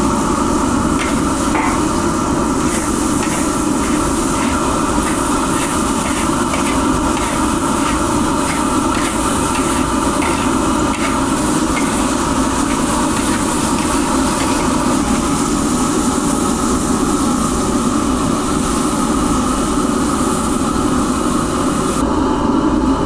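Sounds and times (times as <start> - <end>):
steady machine noise: 0.0 - 16.2.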